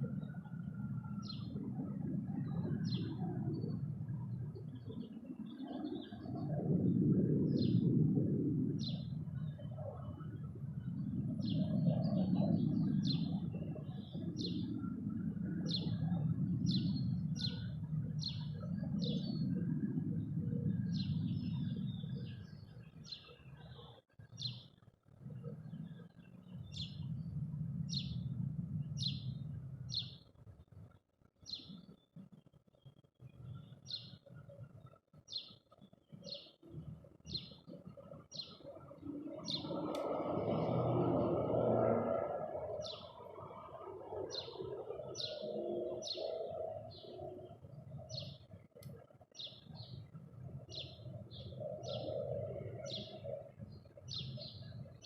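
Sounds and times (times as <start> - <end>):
low rumble: 25.3 - 30.2.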